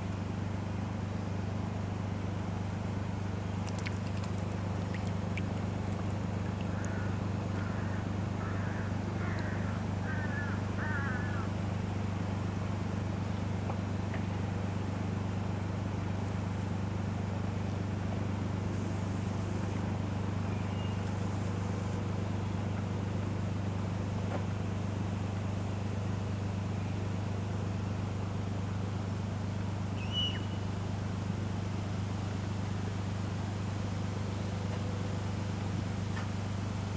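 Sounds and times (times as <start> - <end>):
steady low hum: 0.0 - 36.9
small bird chirping: 30.0 - 30.6.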